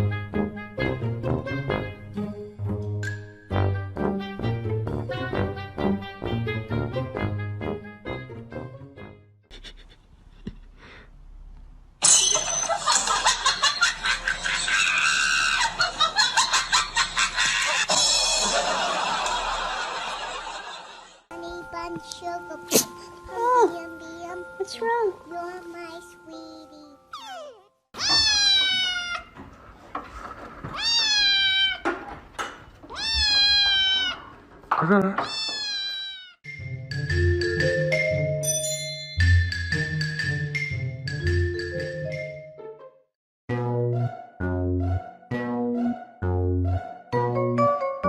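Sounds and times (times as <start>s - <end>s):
person shrieking and laughing: 14.6s - 15.9s
cat meowing: 27.2s - 29.4s, 30.7s - 32.0s, 32.9s - 34.4s, 35.2s - 36.4s.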